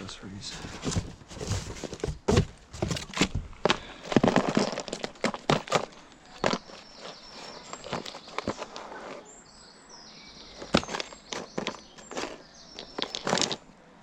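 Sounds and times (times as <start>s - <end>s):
small hard objects clattering: 0.4s - 9.3s, 10.4s - 13.7s.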